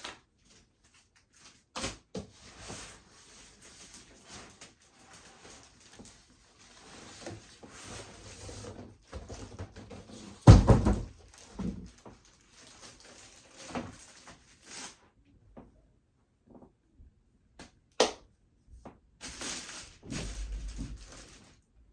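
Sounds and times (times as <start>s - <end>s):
packaging rustling: 0.0s - 8.4s, 10.2s - 15.0s, 19.2s - 21.6s.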